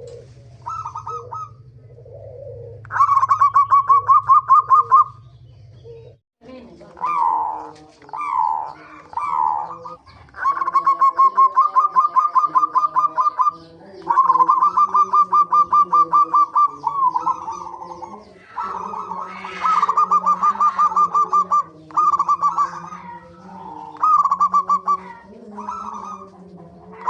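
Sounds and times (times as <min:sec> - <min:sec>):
dove cooing: 0:00.0 - 0:27.0.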